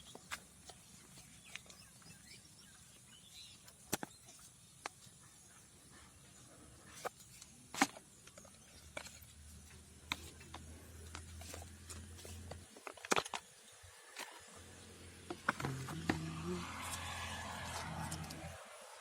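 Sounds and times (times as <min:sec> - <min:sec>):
clicks and taps handling a box: 0:07.0 - 0:13.5.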